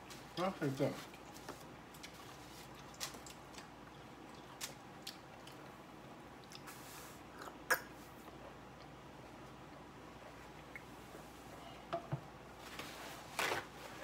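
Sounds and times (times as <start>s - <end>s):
person chewing salad: 1.1s - 9.0s.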